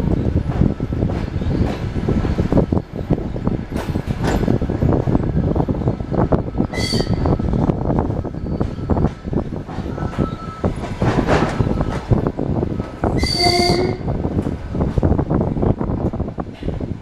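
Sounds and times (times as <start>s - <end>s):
rattles and knocks: 3.7s - 4.8s, 9.0s - 13.1s.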